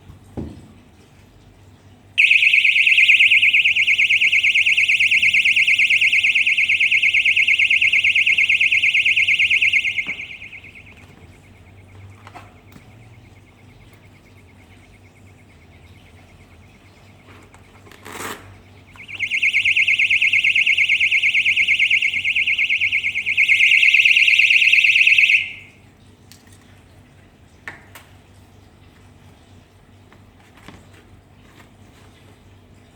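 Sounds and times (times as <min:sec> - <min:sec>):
electronic alarm buzzer: 0:02.2 - 0:11.8, 0:19.0 - 0:25.7
faint steady high tone: 0:02.2 - 0:17.2, 0:18.8 - 0:25.8.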